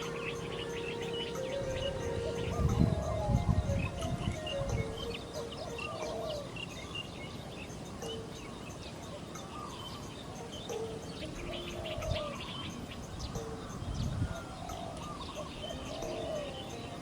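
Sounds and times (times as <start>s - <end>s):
lower rising and falling bird calls: 0.0s - 6.8s.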